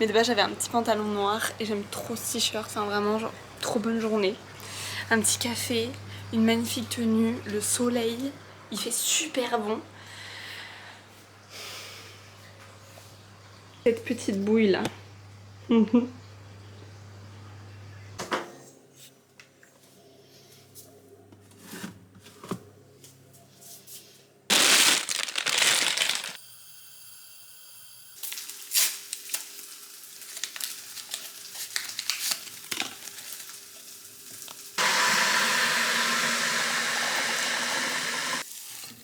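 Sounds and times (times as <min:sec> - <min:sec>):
food sizzling in a hot pan: 0:26.4 - 0:35.0, 0:38.3 - 0:39.0.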